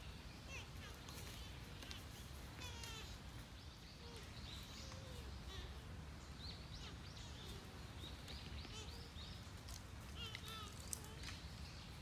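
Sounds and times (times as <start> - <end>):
birds chirping and calling: 0.0 - 12.0.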